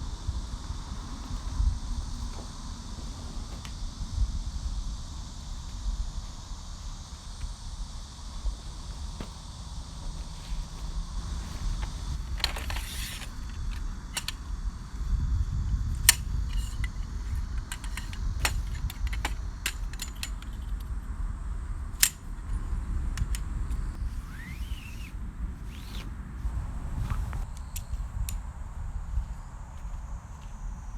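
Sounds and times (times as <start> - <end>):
steady low rumble: 0.0 - 24.2.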